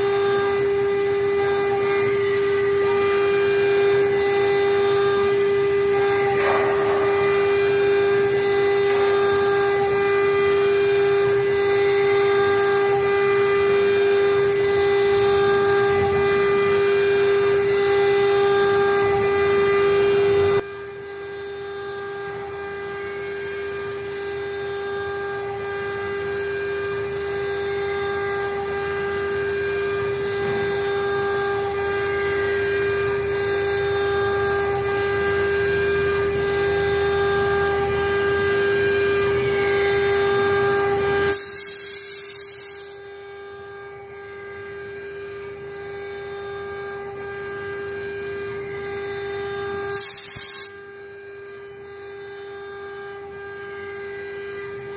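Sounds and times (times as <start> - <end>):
router spindle whine: 0.0 - 54.9
bit cutting wood: 6.0 - 9.9.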